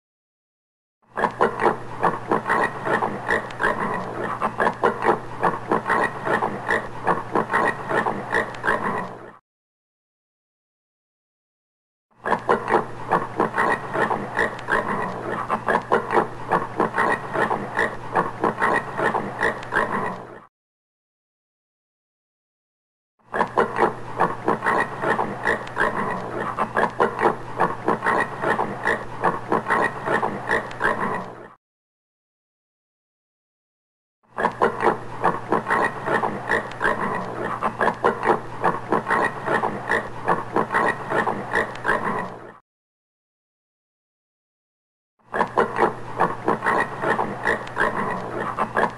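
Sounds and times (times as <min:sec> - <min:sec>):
warthog grunting: 0:01.2 - 0:09.4, 0:12.2 - 0:20.5, 0:23.3 - 0:31.6, 0:34.4 - 0:42.6, 0:45.3 - 0:48.9.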